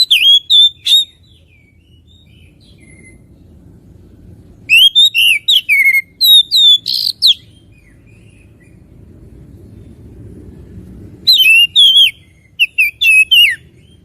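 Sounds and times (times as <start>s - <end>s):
bird whistled song: 0.0s - 3.4s, 4.6s - 8.9s, 11.2s - 14.0s.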